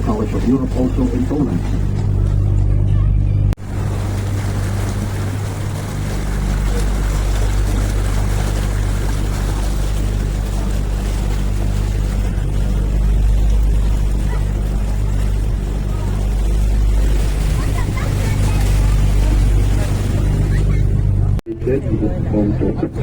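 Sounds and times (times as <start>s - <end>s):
boat motor humming: 0.0s - 23.0s
water and air rushing: 0.0s - 23.0s.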